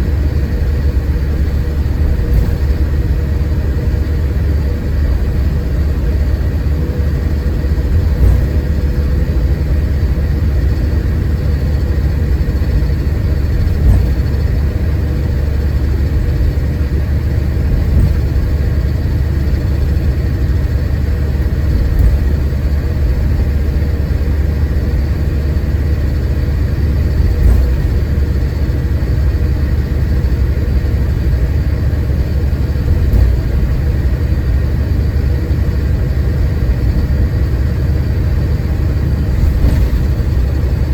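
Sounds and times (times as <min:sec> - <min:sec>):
engine and road rumble: 0:00.0 - 0:40.9
soft bumps: 0:00.8 - 0:04.0, 0:07.1 - 0:24.3, 0:26.1 - 0:29.2, 0:32.5 - 0:35.3, 0:38.7 - 0:40.9.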